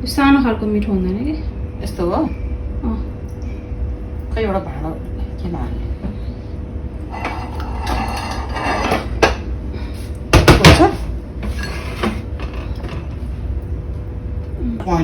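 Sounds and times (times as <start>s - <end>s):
dishes clattering and scraping: 7.0s - 9.5s, 10.4s - 13.3s.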